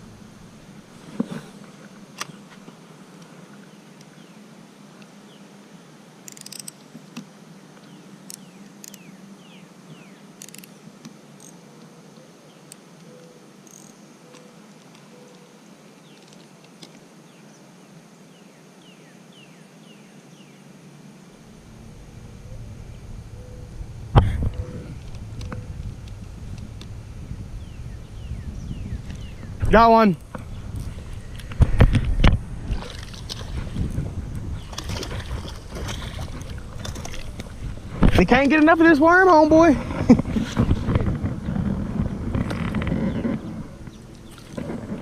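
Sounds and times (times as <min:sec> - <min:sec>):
wind rumble on microphone: 0:21.4 - 0:45.0
bird chirping: 0:21.8 - 0:25.8, 0:27.5 - 0:31.5.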